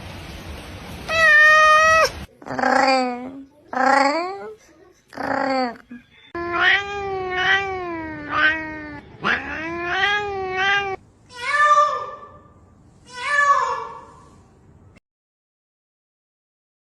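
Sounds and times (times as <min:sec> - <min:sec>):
cat yowling and meowing: 0:01.1 - 0:04.6, 0:05.2 - 0:05.8, 0:06.4 - 0:12.3.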